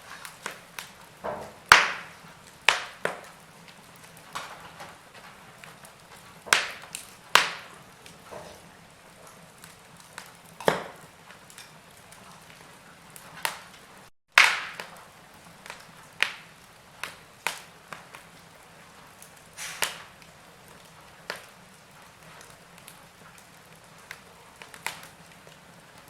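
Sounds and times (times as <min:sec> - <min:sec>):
wood fire snapping and popping: 0:00.0 - 0:26.0.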